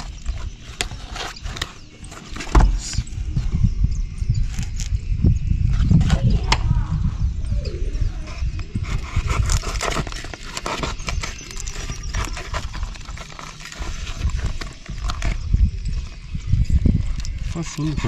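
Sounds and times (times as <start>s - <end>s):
steady low rumble: 2.7s - 9.6s.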